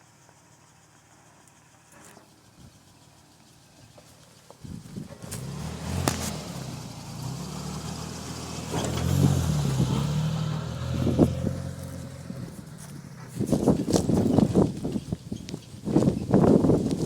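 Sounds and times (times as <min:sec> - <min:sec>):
engine revving under load: 0:04.7 - 0:15.0.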